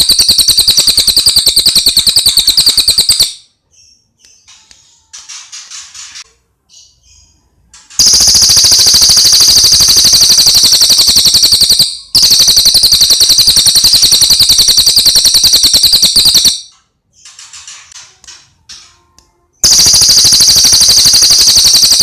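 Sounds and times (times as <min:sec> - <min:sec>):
songbird rattling trills: 0:08.0 - 0:16.6, 0:19.6 - 0:22.0.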